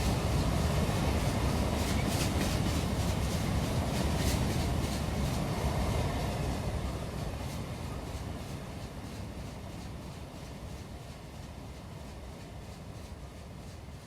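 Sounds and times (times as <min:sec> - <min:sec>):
sharp clicks of train: 0:00.0 - 0:14.0
train rolling rumble: 0:00.0 - 0:14.0.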